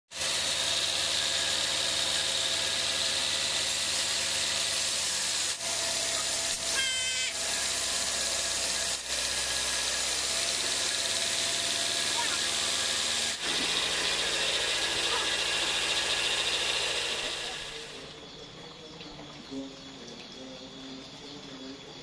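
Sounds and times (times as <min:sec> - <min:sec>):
sawmill machinery hissing: 0:00.1 - 0:18.8
high-pitched squeal: 0:01.2 - 0:18.4.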